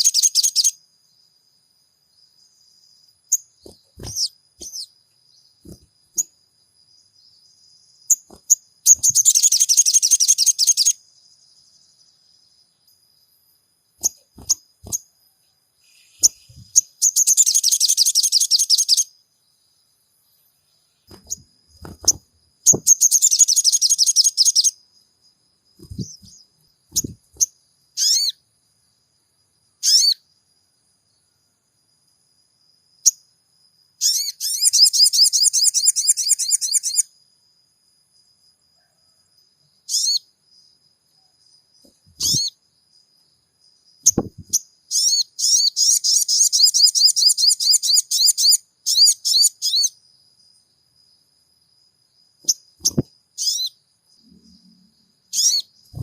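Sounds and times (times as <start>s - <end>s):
short single bird calls: 3.6s - 4.9s, 25.8s - 28.4s, 29.8s - 30.2s, 42.1s - 42.6s, 52.5s - 56.0s
bird chattering trills: 3.7s - 4.9s, 8.1s - 11.0s, 15.9s - 19.0s, 25.8s - 28.4s.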